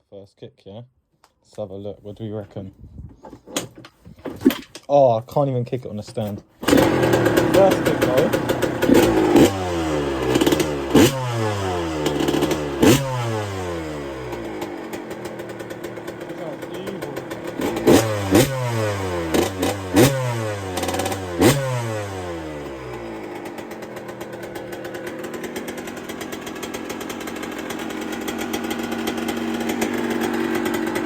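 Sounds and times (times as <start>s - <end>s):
two-stroke engine idling: 6.6s - 31.0s
two-stroke engine revving: 6.6s - 31.0s.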